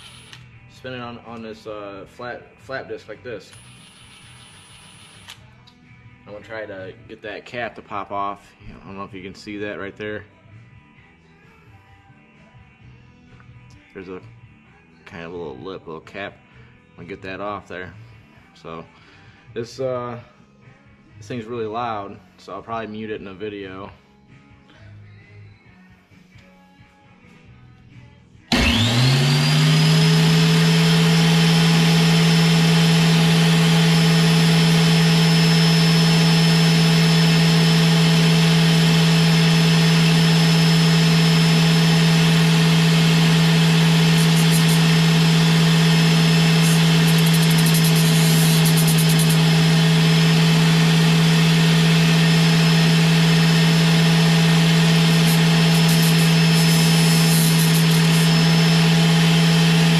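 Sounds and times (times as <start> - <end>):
electric grinder running: 0.0 - 0.4, 28.5 - 59.9.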